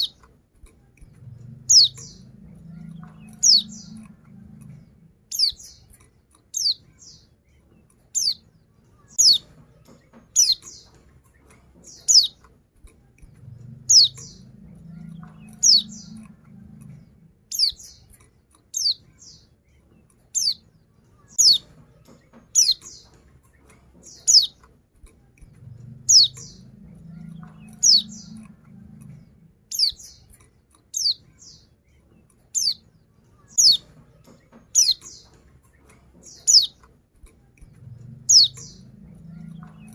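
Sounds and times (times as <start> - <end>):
bird high downward chirps: 0.0 - 0.2, 1.2 - 5.9, 6.5 - 7.3, 8.2 - 9.6, 10.2 - 11.0, 11.8 - 12.4, 13.4 - 18.1, 18.7 - 19.5, 20.4 - 23.2, 24.1 - 24.6, 25.6 - 30.3, 30.9 - 31.8, 32.6 - 35.4, 36.2 - 36.8, 37.8 - 39.9.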